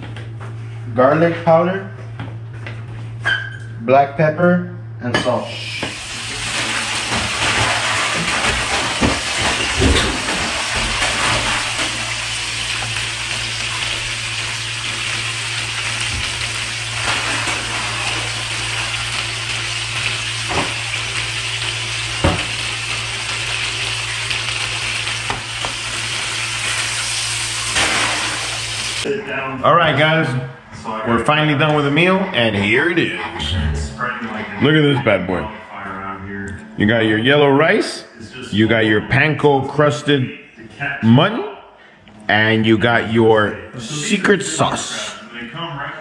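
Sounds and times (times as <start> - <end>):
fish deep-frying in oil: 5.6 - 29.1.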